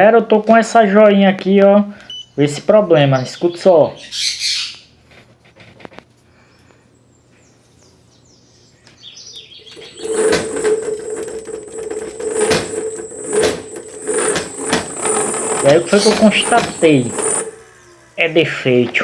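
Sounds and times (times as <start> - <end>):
rattling vibration: 9.7 - 18.3
electric motor hum and whine: 9.7 - 19.0.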